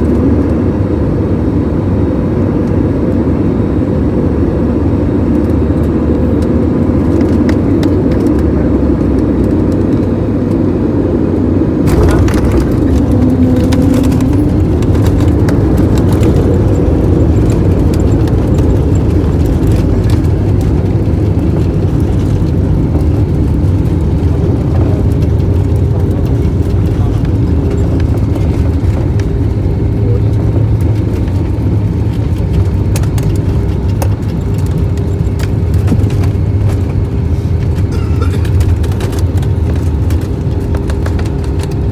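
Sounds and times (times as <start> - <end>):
jet engine rumble in cabin: 0.0 - 41.9
rattles and clicks: 11.8 - 41.9.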